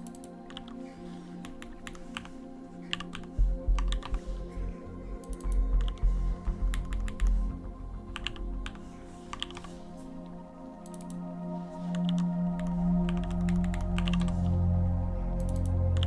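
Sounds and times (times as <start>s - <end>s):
background music: 0.0s - 16.0s
deep low rumble: 3.4s - 9.6s, 12.2s - 16.0s.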